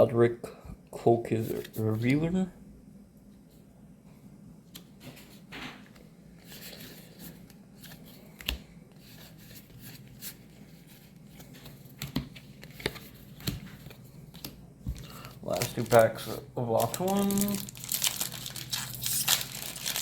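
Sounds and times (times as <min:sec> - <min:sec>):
cards and wrappers rustling: 0:04.8 - 0:20.0.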